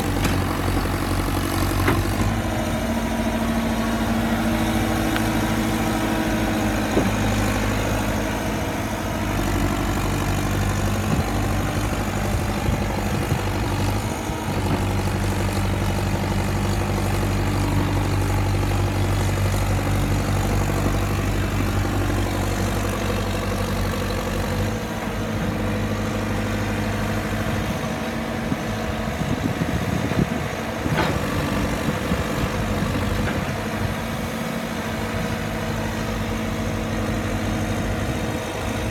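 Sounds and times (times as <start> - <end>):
backhoe diesel engine running: 0.0 - 38.9.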